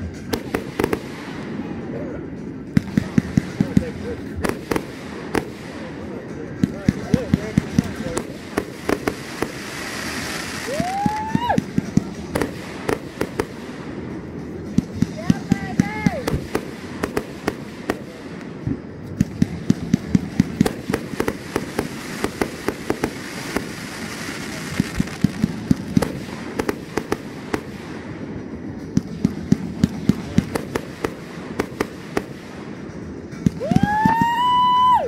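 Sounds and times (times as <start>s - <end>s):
fireworks bangs and crackling: 0.0s - 35.0s
rising firework whistle: 9.4s - 12.5s, 33.4s - 35.0s.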